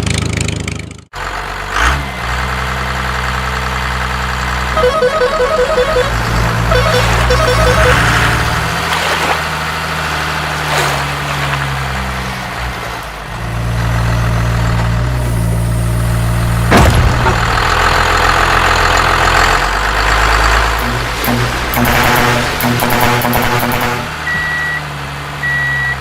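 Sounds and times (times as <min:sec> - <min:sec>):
truck engine running: 0:00.0 - 0:26.0
sharp bang: 0:16.4 - 0:18.0, 0:20.8 - 0:24.2.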